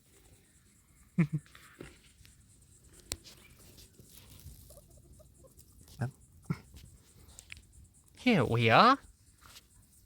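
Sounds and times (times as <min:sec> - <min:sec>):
faint rustling: 0:01.5 - 0:06.1.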